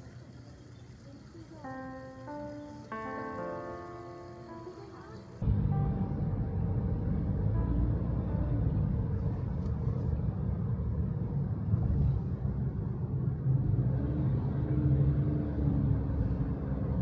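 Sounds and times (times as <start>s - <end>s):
vehicle engine rumbling: 5.2s - 17.0s.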